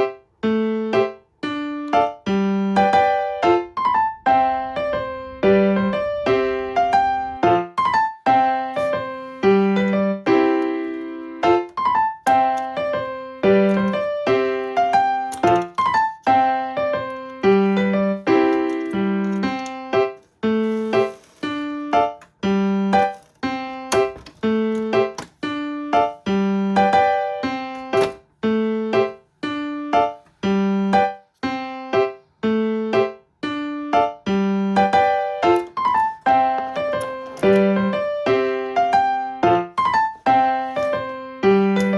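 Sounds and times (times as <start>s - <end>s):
piano tune with repeating pattern: 0.0s - 41.9s.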